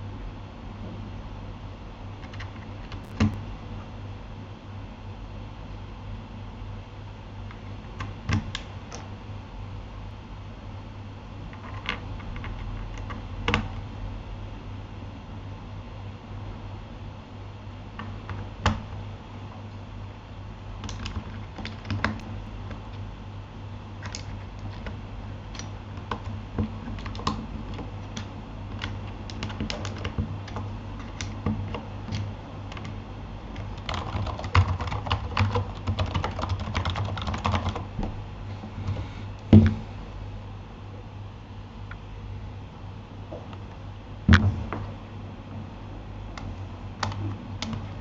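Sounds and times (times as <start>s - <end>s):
mechanical keyboard typing: 2.2s - 3.4s, 11.6s - 13.8s, 20.8s - 22.2s, 24.0s - 37.9s, 47.0s - 47.8s
loud keystroke thump: 39.5s - 39.8s.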